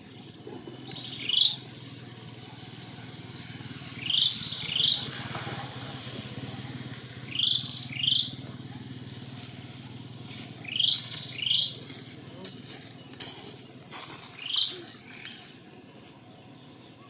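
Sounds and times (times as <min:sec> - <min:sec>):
bird chirping: 0:00.0 - 0:02.4, 0:03.2 - 0:08.6, 0:10.2 - 0:17.0
steady low hum: 0:00.0 - 0:17.0.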